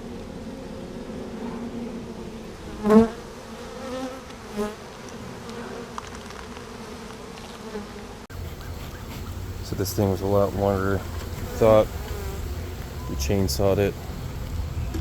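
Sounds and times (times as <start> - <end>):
bee colony buzzing: 0.0 - 15.0
single bees buzzing close: 0.6 - 9.6, 11.1 - 13.0.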